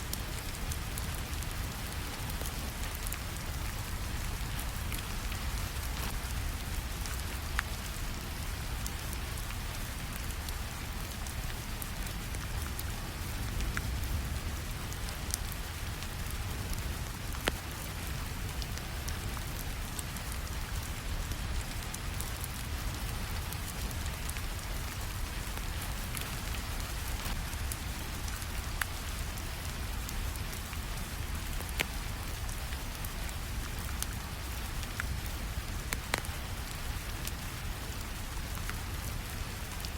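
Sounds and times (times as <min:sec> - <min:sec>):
steady rainfall: 0:00.0 - 0:39.9
wood fire crackling: 0:00.0 - 0:39.9.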